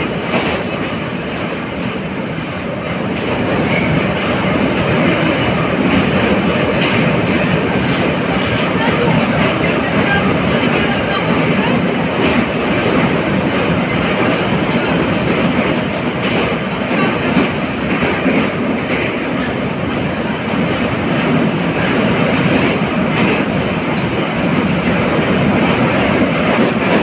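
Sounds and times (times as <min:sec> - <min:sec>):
metro car running noise: 0:00.0 - 0:27.0.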